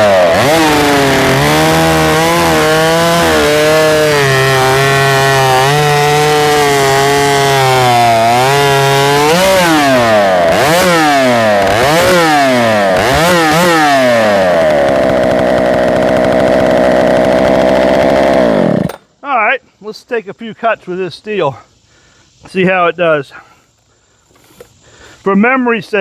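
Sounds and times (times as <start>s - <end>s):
chainsaw running and revving: 0.0s - 19.0s.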